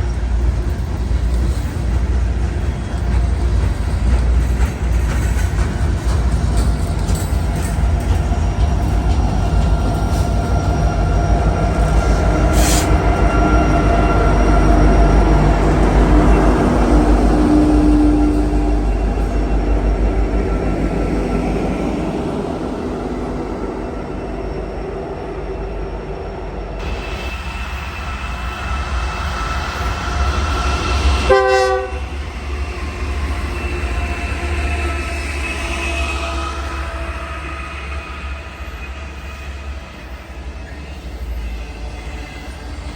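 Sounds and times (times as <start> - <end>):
train rumbling past: 0.0 - 42.9
wheels squealing on rails: 0.0 - 42.9
locomotive horn blast: 31.3 - 32.2.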